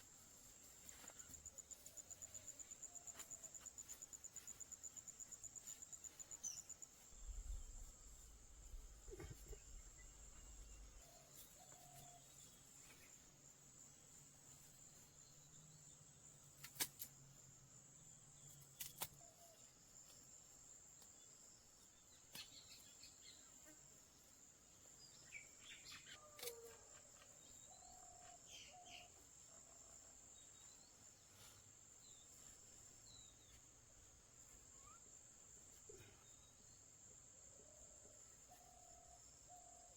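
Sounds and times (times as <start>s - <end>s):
faint bird chirps: 25.0s - 33.6s, 34.4s - 36.9s.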